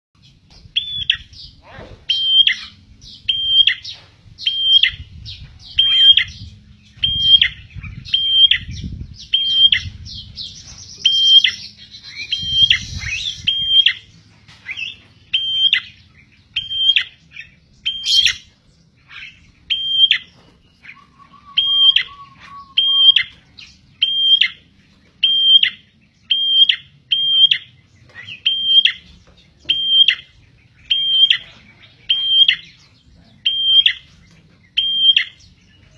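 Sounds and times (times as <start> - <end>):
bird calling sharp high note: 20.9 - 23.3.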